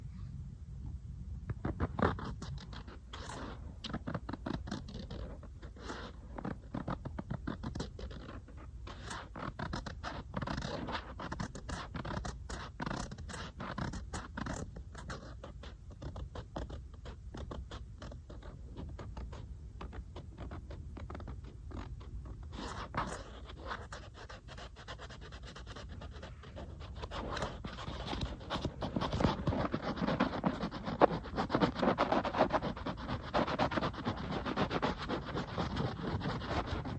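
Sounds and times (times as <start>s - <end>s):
fingers tapping on a tablet: 9.0s - 23.3s.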